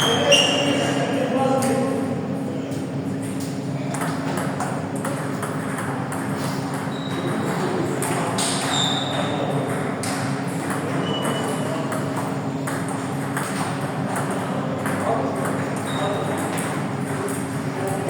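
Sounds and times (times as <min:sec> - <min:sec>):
short high squeaks: 0:00.0 - 0:00.8, 0:08.6 - 0:09.4
table tennis balls clicking: 0:09.5 - 0:18.0.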